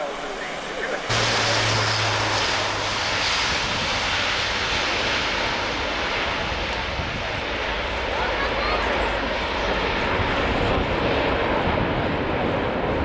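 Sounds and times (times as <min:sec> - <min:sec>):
turboprop engines roaring: 0:00.0 - 0:13.0
low hum: 0:01.0 - 0:07.4.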